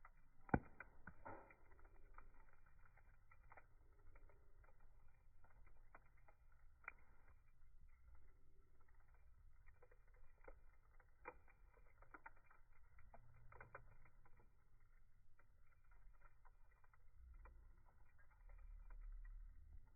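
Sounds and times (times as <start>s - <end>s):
campfire crackling: 0.0s - 19.9s.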